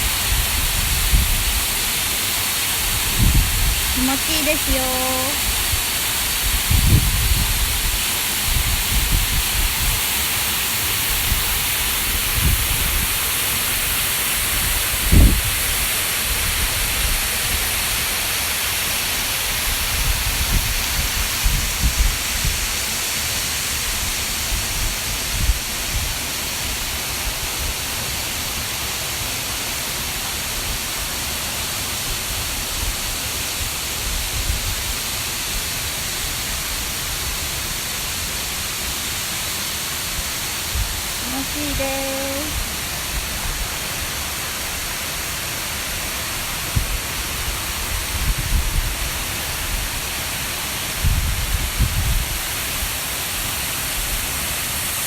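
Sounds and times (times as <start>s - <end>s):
waterfall rushing: 0.0s - 41.8s, 42.5s - 55.0s.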